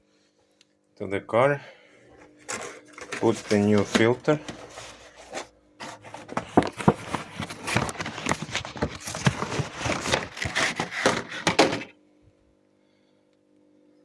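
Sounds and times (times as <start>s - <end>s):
plastic clicking and knocking: 5.8s - 11.9s.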